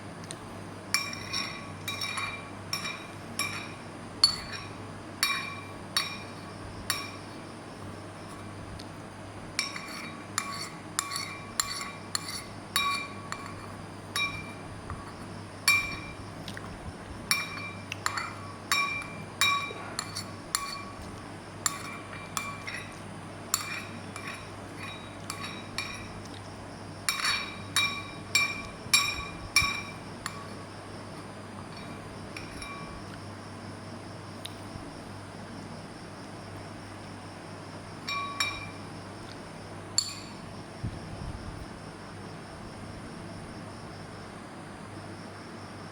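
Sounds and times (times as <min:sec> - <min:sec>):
utensil clinking against dish: 0:00.2 - 0:07.4, 0:09.5 - 0:33.3, 0:38.0 - 0:39.4, 0:40.0 - 0:40.5.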